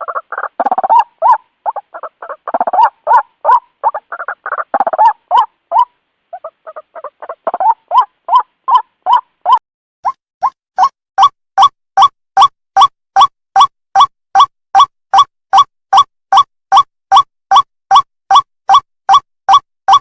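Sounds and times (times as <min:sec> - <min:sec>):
harsh grating bird croaks: 0:00.0 - 0:09.6
bird calling rapid rising notes: 0:00.0 - 0:20.0.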